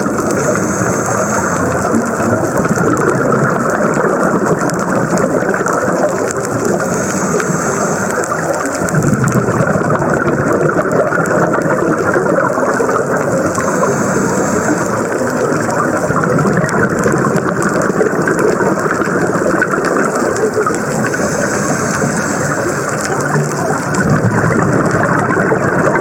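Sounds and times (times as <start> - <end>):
hissing breath: 0.0 - 2.6, 6.4 - 9.0, 12.8 - 16.1, 19.8 - 24.0
exhaust bubbles surge: 0.0 - 26.0
scuba regulator breathing underwater: 0.0 - 26.0.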